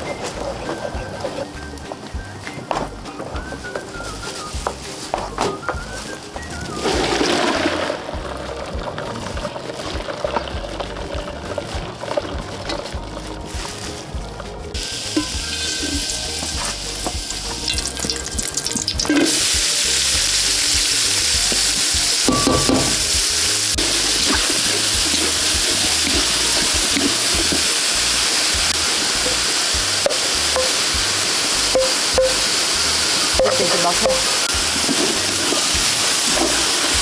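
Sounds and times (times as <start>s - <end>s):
food sizzling in a hot pan: 14.8s - 37.0s.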